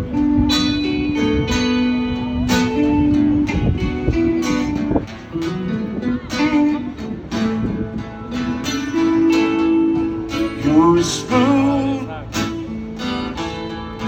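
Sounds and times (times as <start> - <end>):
guitar plucking and strumming: 0.0 - 14.0
person singing: 9.0 - 12.4.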